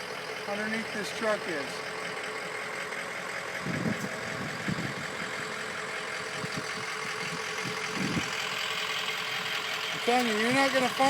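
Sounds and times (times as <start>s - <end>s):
diesel engine idling: 0.0s - 11.0s
dull low thumps: 3.6s - 8.4s.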